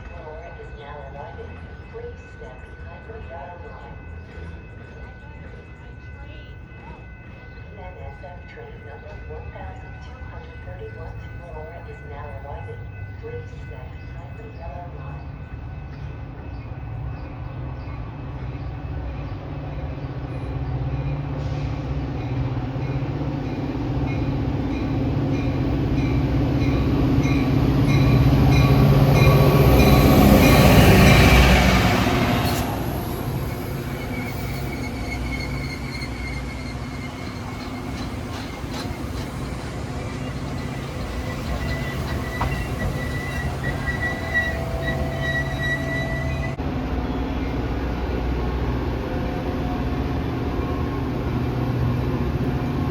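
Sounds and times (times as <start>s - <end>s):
diesel train passing: 0.0s - 52.9s
train brakes squealing: 21.3s - 22.4s, 29.8s - 46.6s.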